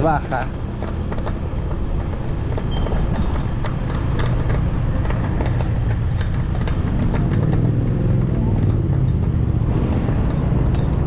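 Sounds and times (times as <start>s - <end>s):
bicycle road noise: 0.0s - 11.0s
rattling clicks: 0.4s - 11.0s
high squeak: 2.7s - 3.5s.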